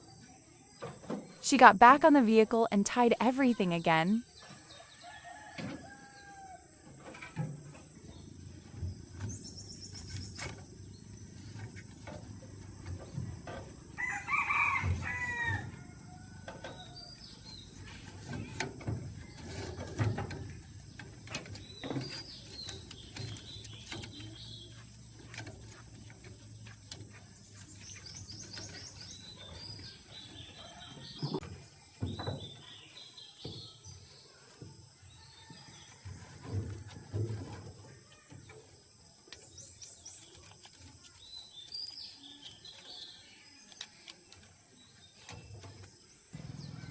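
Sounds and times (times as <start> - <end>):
small birds chirping: 0.0 - 46.9
rooster crowing: 4.9 - 6.8, 14.0 - 16.5
knocks and thumps: 6.8 - 38.8.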